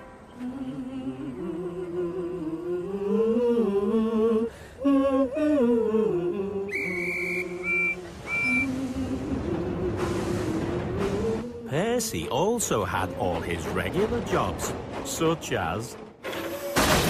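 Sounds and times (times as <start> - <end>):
person humming a melody: 0.3 - 10.2.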